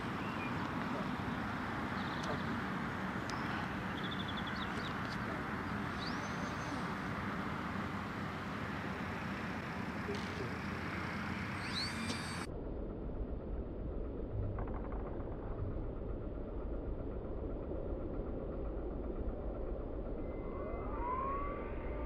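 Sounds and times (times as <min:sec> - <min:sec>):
birds chirping and whistling: 0:00.0 - 0:07.1, 0:11.4 - 0:12.5
model aircraft motor drone: 0:00.0 - 0:12.5, 0:14.6 - 0:22.0.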